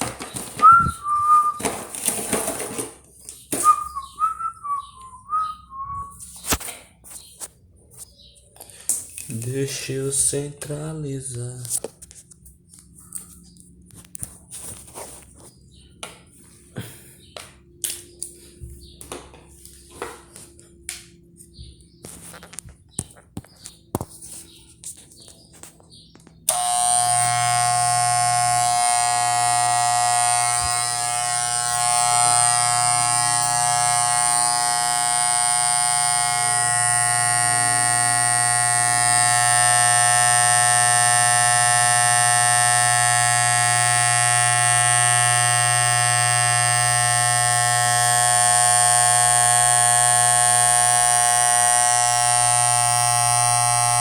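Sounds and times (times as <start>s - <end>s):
electric hair clipper buzzing: 0.0s - 5.4s, 26.4s - 54.0s.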